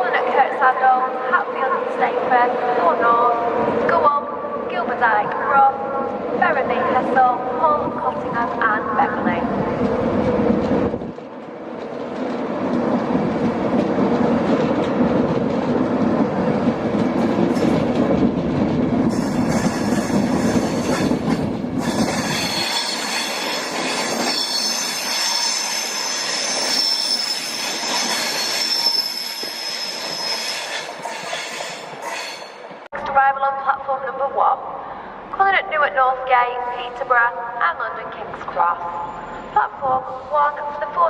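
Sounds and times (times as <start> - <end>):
train rumbling: 0.0 - 33.2
wheels squealing on rail: 19.1 - 32.7, 38.9 - 39.6.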